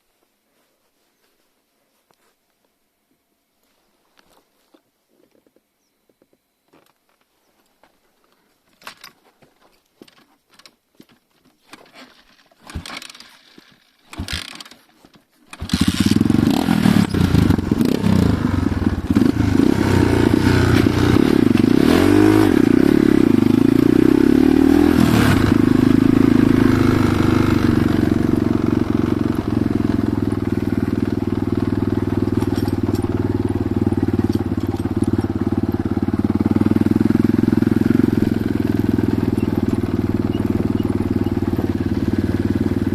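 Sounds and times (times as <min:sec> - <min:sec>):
faint clicks and rustles: 0:00.0 - 0:15.6
motorcycle engine starting and revving: 0:11.8 - 0:14.9, 0:15.5 - 0:42.9.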